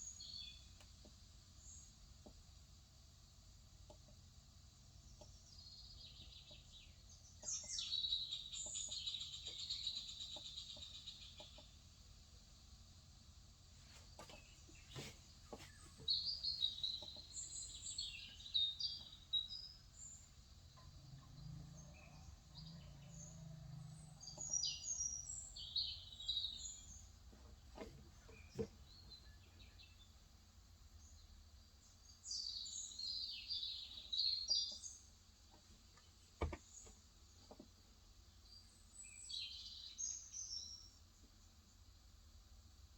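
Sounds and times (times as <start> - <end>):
birds chirping: 5.0 - 11.8, 14.1 - 30.2.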